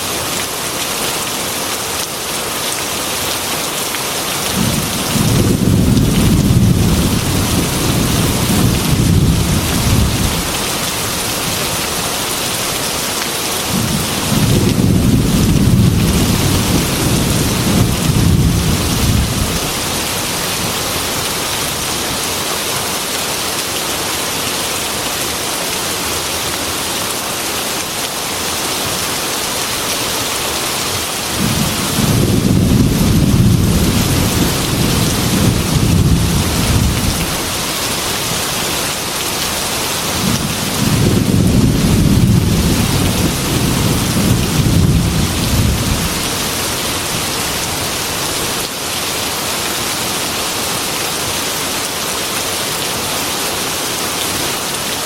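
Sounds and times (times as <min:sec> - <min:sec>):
heavy rain: 0:00.0 - 0:55.0
thunder rumbling: 0:04.5 - 0:11.6, 0:13.7 - 0:21.2, 0:31.4 - 0:37.8, 0:40.0 - 0:46.7.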